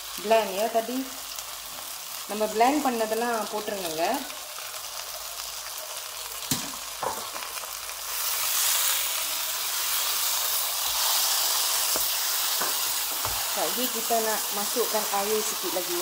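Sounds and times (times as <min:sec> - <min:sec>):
food sizzling in a wok: 0:00.0 - 0:16.0
spatula scraping wok: 0:08.1 - 0:14.6.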